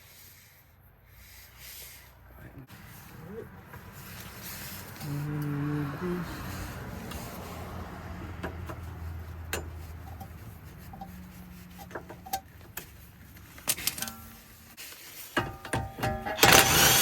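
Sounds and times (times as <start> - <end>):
tools clicking and knocking: 8.4 - 11.2, 11.8 - 14.4, 15.4 - 17.0.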